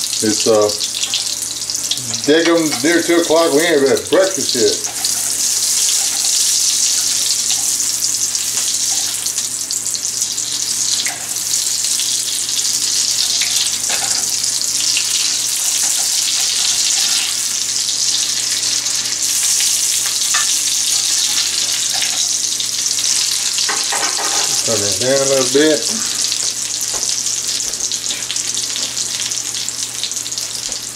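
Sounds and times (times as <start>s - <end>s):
onions sizzling in skillet: 0.0s - 30.9s.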